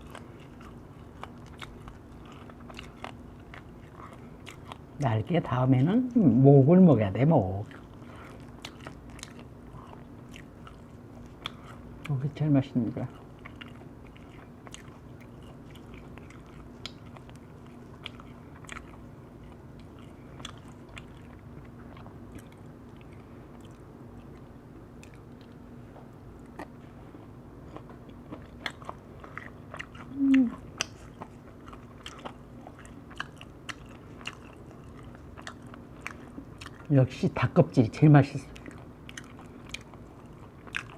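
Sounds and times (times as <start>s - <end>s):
chewing crisp chicken: 0.0s - 40.9s
steady low hum: 0.0s - 40.9s
person vocal sound: 30.1s - 30.6s.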